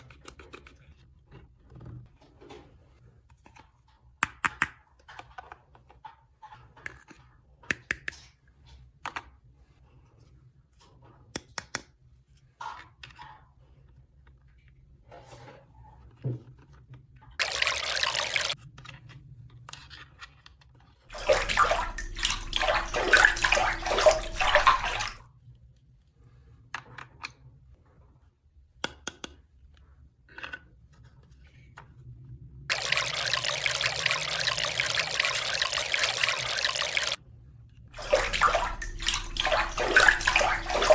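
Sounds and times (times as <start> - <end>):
water running: 17.4 - 18.6, 21.1 - 25.2, 32.7 - 37.2, 38.0 - 40.9.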